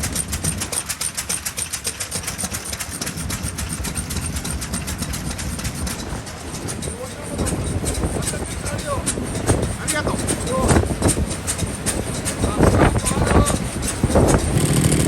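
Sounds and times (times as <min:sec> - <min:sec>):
single-cylinder engine running: 0:00.0 - 0:15.0.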